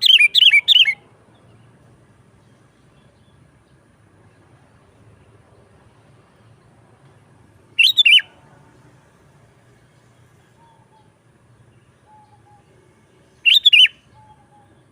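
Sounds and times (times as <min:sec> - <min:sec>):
bird calling bubbling notes: 0:07.8 - 0:08.3.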